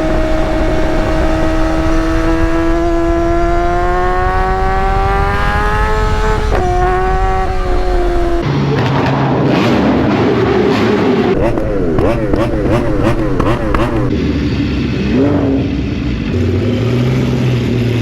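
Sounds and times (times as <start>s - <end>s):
motorcycle engine accelerating: 0.0s - 8.4s, 11.4s - 14.2s.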